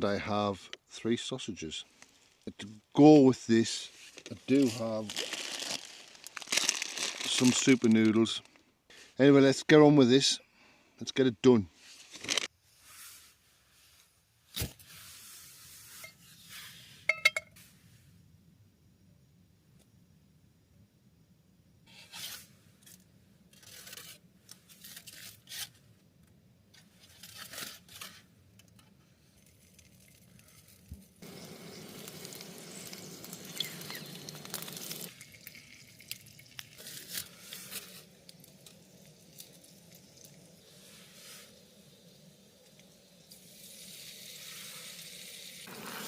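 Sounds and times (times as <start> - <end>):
steady hiss: 0.0 - 19.2, 30.4 - 46.0
food wrappings crinkling and tearing: 4.1 - 8.6, 12.1 - 12.5.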